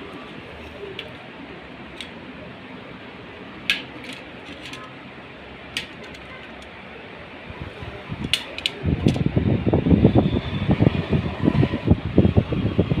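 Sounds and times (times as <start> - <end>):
small tools clicking: 3.7 - 5.0, 5.8 - 6.7.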